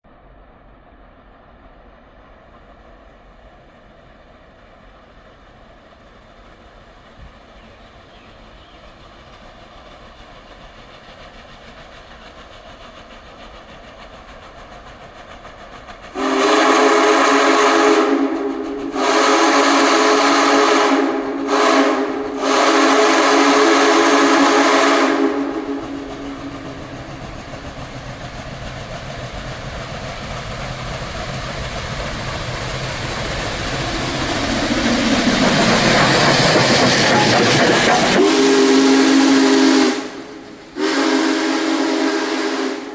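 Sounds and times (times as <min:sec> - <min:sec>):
steam locomotive running: 0:00.0 - 0:42.9
steam locomotive chime whistle: 0:16.2 - 0:26.5, 0:36.7 - 0:42.9.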